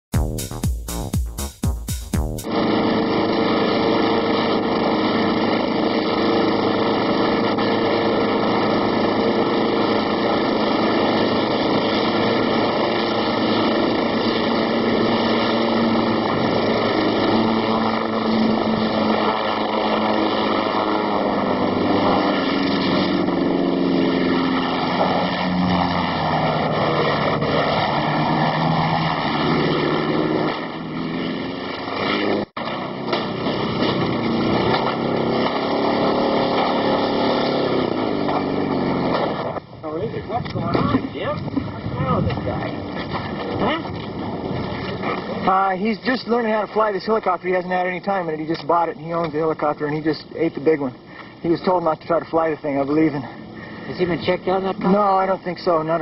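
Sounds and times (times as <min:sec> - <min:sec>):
helicopter engine and rotor: 0:02.5 - 0:30.9.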